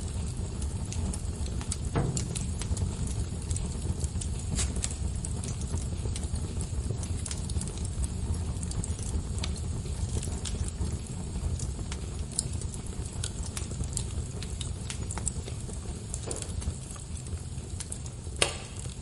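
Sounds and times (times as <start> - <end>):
burning logs crackling and popping: 0.0 - 19.0
rumble of fire flames: 0.0 - 19.0.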